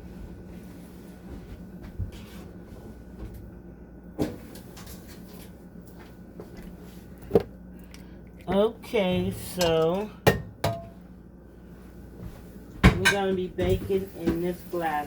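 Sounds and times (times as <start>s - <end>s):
steady low hum: 0.0s - 15.0s
kitchen knocks: 10.3s - 10.9s.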